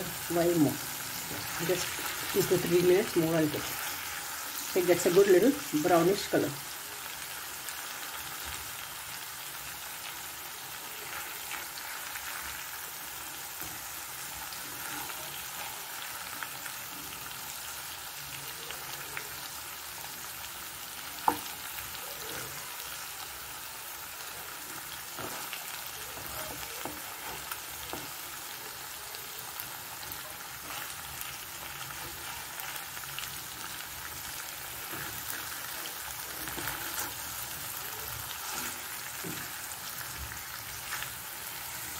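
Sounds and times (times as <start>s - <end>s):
chicken sizzling in oil: 0.0s - 41.9s
spatula stirring and scraping: 0.1s - 5.7s, 10.1s - 17.5s, 24.5s - 28.9s, 29.6s - 41.9s.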